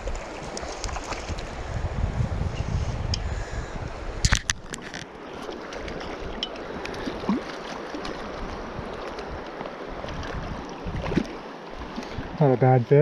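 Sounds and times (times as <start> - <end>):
river water rushing: 4.9 - 12.8.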